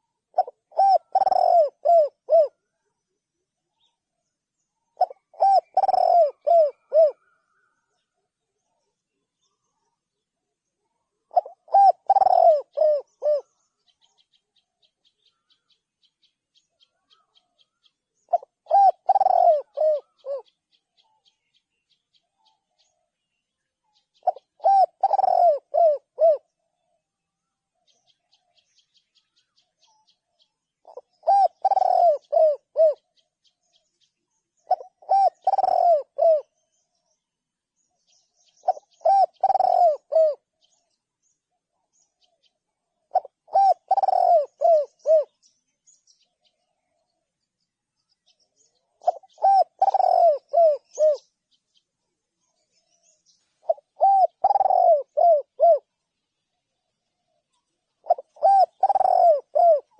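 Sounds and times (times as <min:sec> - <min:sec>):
dove cooing: 0:00.0 - 0:02.8, 0:05.0 - 0:08.2, 0:11.1 - 0:14.2, 0:16.9 - 0:20.6, 0:24.1 - 0:26.6, 0:30.8 - 0:33.2, 0:34.6 - 0:36.6, 0:38.6 - 0:40.8, 0:43.0 - 0:45.4, 0:48.9 - 0:51.4, 0:52.6 - 0:55.9, 0:57.9 - 0:59.9.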